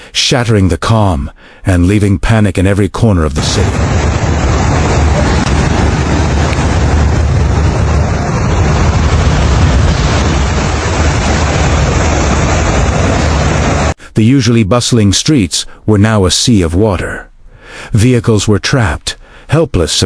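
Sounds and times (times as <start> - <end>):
deep rumble: 3.4 - 14.0
heavy rain: 3.4 - 14.0
strong wind: 3.4 - 14.0.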